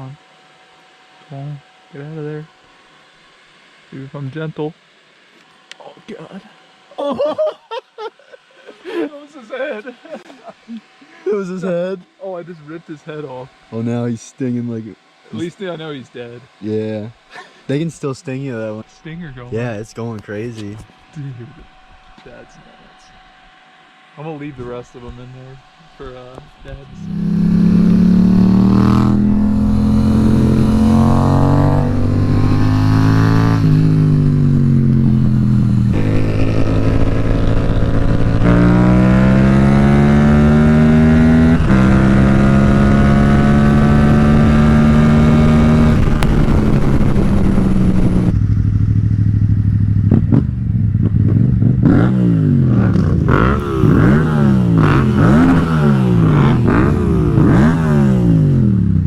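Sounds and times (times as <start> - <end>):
motorcycle engine accelerating: 24.2 - 59.0
motorcycle engine revving: 24.2 - 59.0.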